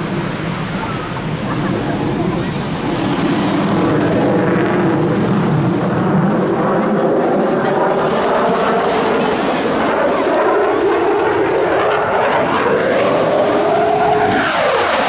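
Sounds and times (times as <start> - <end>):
jet engines roaring overhead: 0.0 - 15.0.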